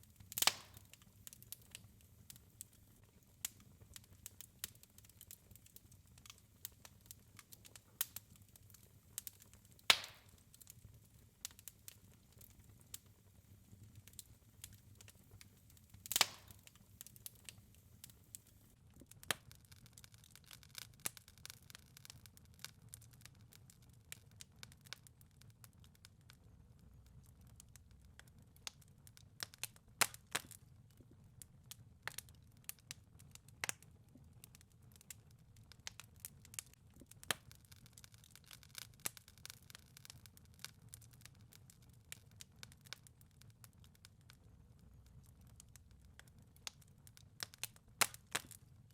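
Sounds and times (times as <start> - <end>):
wood fire crackling and popping: 0.0 - 48.9.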